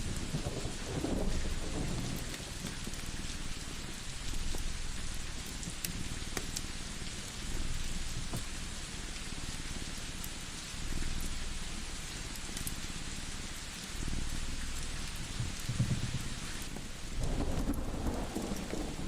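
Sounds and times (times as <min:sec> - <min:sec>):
low thunder rumble: 0:00.0 - 0:05.4, 0:14.2 - 0:19.0
steady rain: 0:00.0 - 0:19.0
wood fire crackles: 0:00.0 - 0:19.0.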